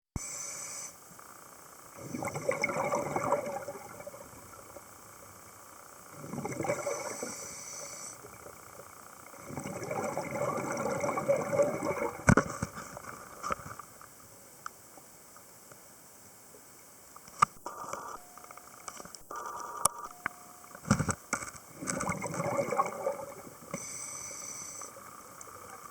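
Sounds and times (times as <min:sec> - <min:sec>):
faint steady hiss: 0:00.2 - 0:25.9
underwater bubbling gushes: 0:02.0 - 0:04.8, 0:06.1 - 0:07.5, 0:08.2 - 0:12.4, 0:21.8 - 0:23.7.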